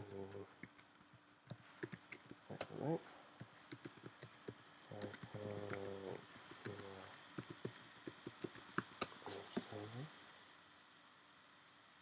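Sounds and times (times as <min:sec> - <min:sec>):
keyboard typing clicks: 0:00.0 - 0:02.8, 0:03.4 - 0:09.1
low steady hum: 0:00.0 - 0:12.0.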